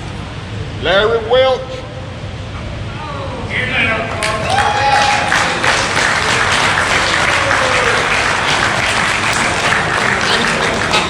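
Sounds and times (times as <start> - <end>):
crowd applauding: 4.1 - 11.0.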